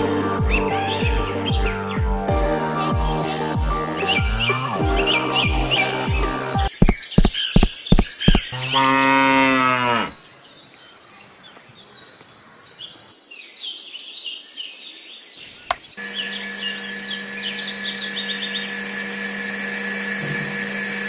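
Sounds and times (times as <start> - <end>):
birds chirping: 0.0 - 18.9
small motor humming: 2.6 - 6.5, 16.0 - 21.0
cow mooing: 8.5 - 10.2.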